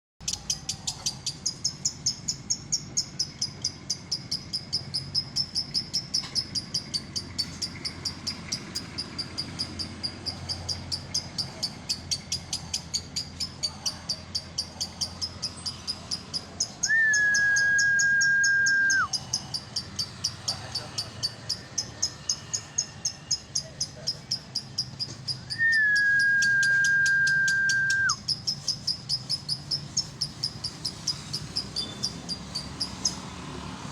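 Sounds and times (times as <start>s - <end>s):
bird chirping rapidly: 0.2s - 33.5s
whistle-like tone: 16.8s - 19.2s, 25.5s - 28.2s.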